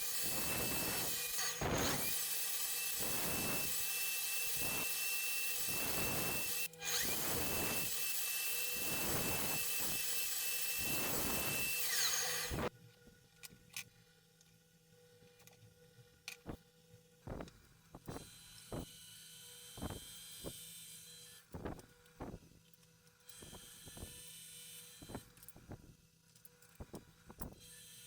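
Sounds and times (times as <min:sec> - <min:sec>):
power tool motor whine: 0:00.0 - 0:12.7, 0:17.3 - 0:22.4, 0:23.3 - 0:26.0.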